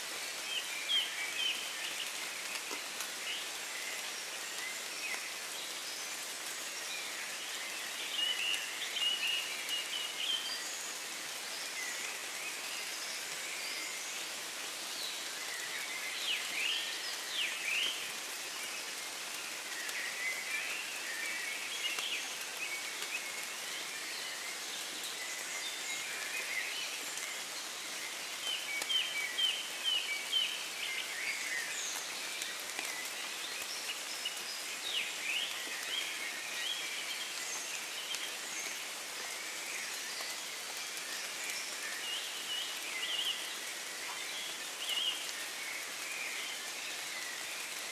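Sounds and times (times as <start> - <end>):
light rain falling: 0.0 - 47.9.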